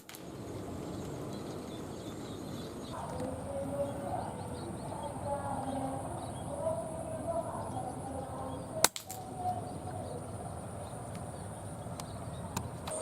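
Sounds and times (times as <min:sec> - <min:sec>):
birds chirping: 0:00.0 - 0:13.0
air rifle shot: 0:08.8 - 0:09.3.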